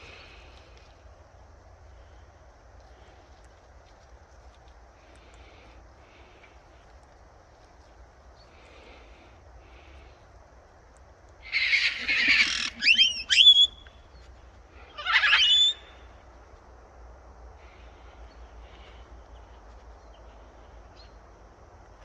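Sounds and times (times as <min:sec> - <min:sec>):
parrot squawking: 0:11.5 - 0:13.8, 0:14.9 - 0:15.8.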